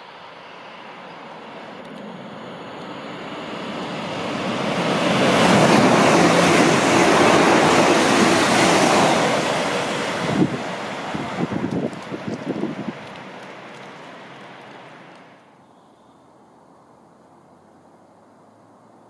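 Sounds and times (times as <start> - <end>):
train rushing past: 0.0 - 15.4
wind buffeting microphone: 3.5 - 15.2.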